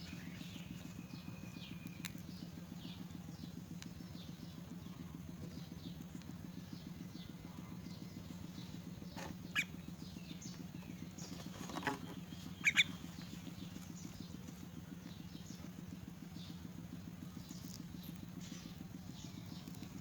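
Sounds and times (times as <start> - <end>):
steady low hum: 0.0 - 20.0
myna sharp calls: 9.5 - 9.8, 12.5 - 13.0.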